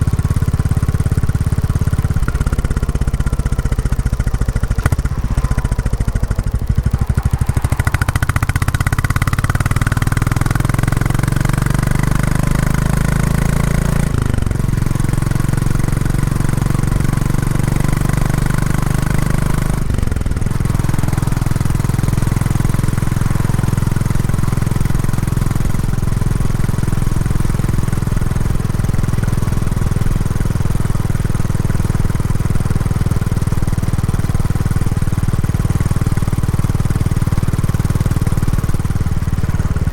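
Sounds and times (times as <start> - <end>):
motorcycle engine pulling: 0.0 - 12.3.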